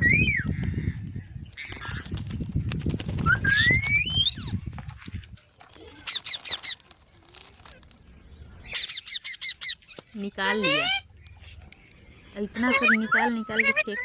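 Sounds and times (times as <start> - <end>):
parrot calling: 8.6 - 11.1, 12.5 - 14.0.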